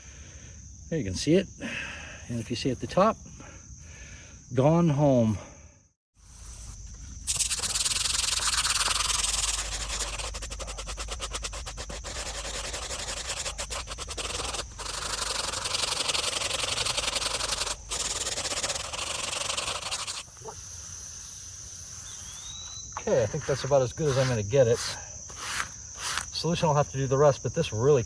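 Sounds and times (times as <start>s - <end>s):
brush scrubbing stone: 6.2s - 20.3s, 22.4s - 26.6s.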